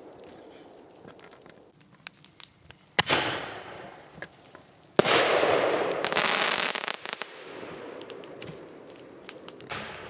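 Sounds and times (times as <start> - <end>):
firework bangs: 3.0 - 4.0, 5.0 - 10.0
firework hissing and crackling: 6.0 - 7.4.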